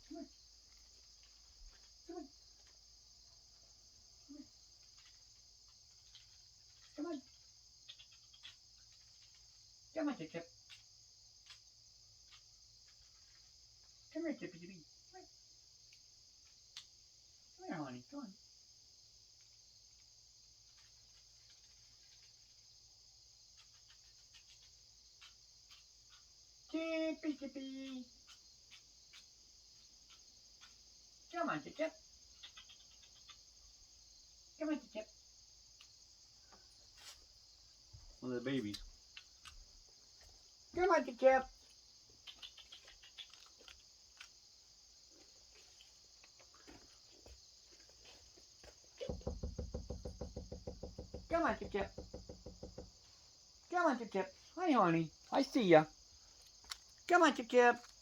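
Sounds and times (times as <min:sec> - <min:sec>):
crickets chirping: 0:00.0 - 0:58.0
faint ticks: 0:41.6 - 0:44.4.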